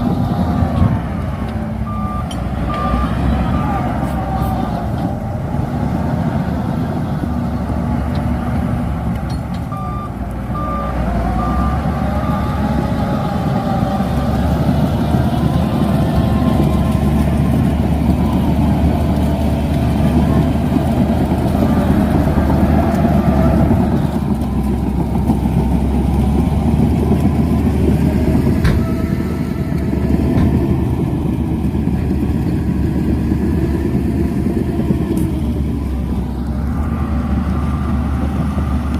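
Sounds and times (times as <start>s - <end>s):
bulldozer diesel engine: 0.0s - 38.9s
reversing alarm beeping: 1.8s - 4.7s, 9.7s - 13.6s.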